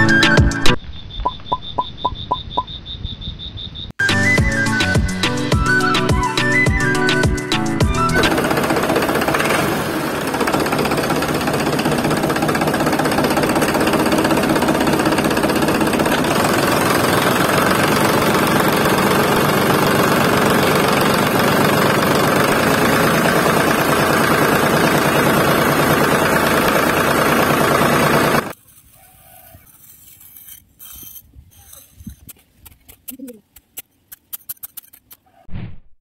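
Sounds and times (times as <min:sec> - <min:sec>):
tractor engine knocking: 0:08.1 - 0:28.5.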